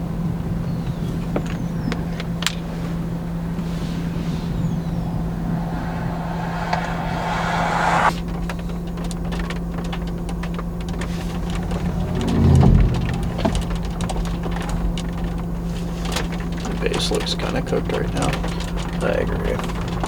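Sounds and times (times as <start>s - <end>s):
car engine and road drone: 4.4s - 8.1s, 11.0s - 15.4s
rushing noise: 4.5s - 8.1s.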